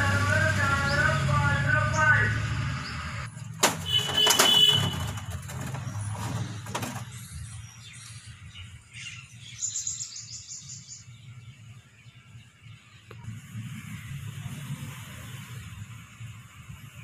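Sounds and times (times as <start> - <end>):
sharp metallic knocks: 3.4 - 7.2.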